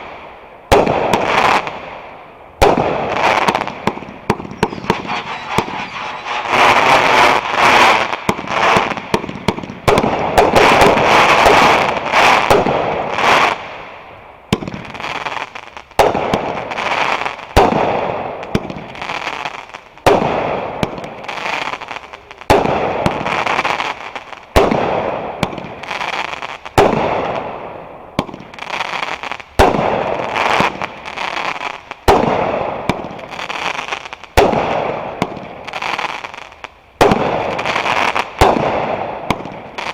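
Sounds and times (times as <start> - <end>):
fireworks crackling: 0.7 - 13.9, 28.2 - 39.9
fireworks bangs: 2.6 - 13.6, 37.0 - 39.9.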